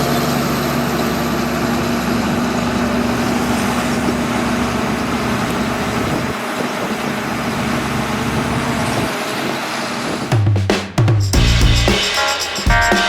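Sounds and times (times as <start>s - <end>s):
bulldozer diesel engine running: 0.0s - 9.0s.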